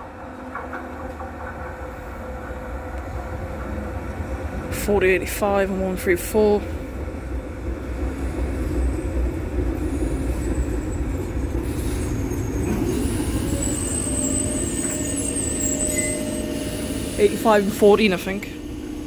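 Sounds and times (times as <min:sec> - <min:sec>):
train wheels rumbling on rails: 0:00.0 - 0:19.0
high thin squeal: 0:11.6 - 0:17.3.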